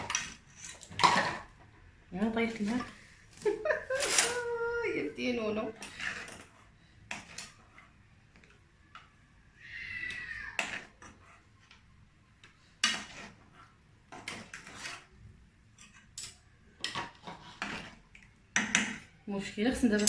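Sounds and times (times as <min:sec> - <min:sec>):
metal utensils and pots clinking: 0:00.0 - 0:01.6, 0:12.8 - 0:13.4, 0:14.1 - 0:15.1, 0:15.7 - 0:19.1.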